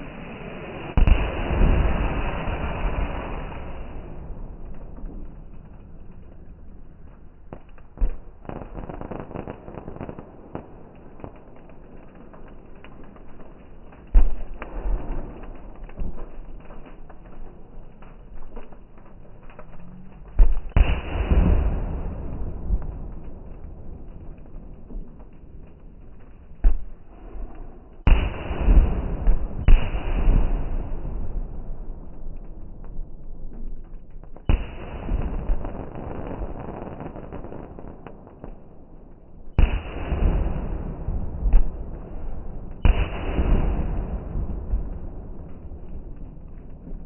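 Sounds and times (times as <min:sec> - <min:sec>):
rush of noise after bursts: 0:00.0 - 0:04.5
firework bangs: 0:00.0 - 0:47.0
fireworks crackling: 0:00.0 - 0:47.0.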